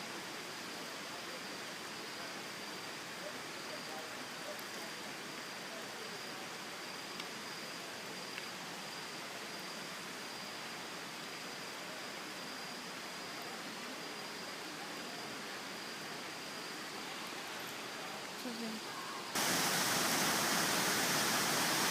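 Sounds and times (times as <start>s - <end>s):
waterfall roaring: 19.2s - 21.9s.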